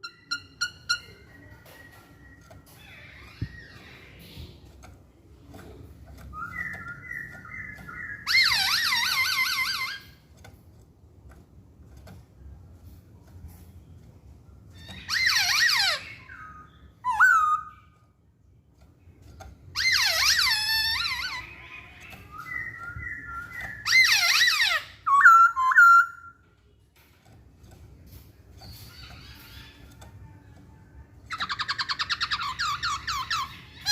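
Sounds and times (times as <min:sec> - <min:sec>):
bird singing: 0:00.0 - 0:10.4, 0:14.5 - 0:33.9
bird singing whistled notes: 0:06.2 - 0:09.2, 0:15.2 - 0:18.0, 0:22.1 - 0:26.4.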